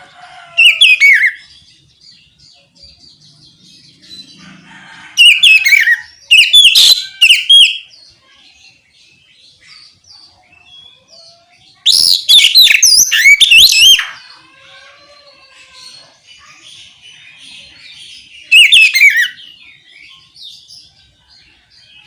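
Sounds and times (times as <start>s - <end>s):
bird whistled song: 5.2s - 7.9s, 11.8s - 14.1s, 18.4s - 19.5s.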